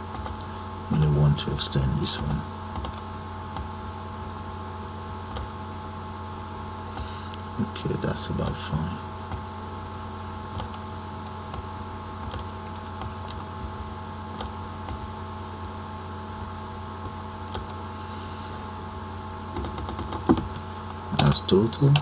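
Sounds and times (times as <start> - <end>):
keyboard and mouse clicks: 0.0 - 1.1, 2.2 - 3.0, 19.5 - 20.5
mains hum: 0.0 - 22.0.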